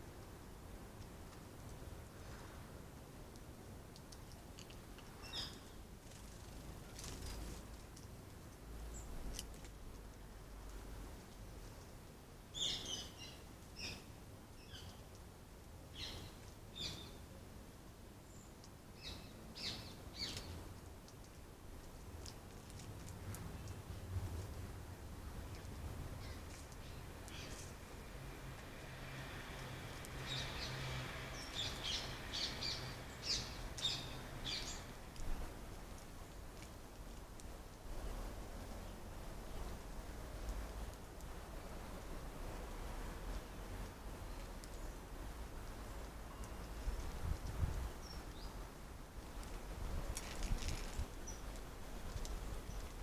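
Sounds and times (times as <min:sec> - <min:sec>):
faint background noise: 0:00.0 - 0:53.0
small birds chirping: 0:04.1 - 0:07.6, 0:11.4 - 0:15.2, 0:15.9 - 0:17.3, 0:18.2 - 0:24.1, 0:25.4 - 0:28.1, 0:29.5 - 0:35.5, 0:45.7 - 0:53.0
small bird chirping: 0:05.2 - 0:05.8, 0:12.5 - 0:15.0, 0:15.9 - 0:17.2, 0:18.2 - 0:20.6, 0:26.2 - 0:27.8, 0:31.4 - 0:34.9.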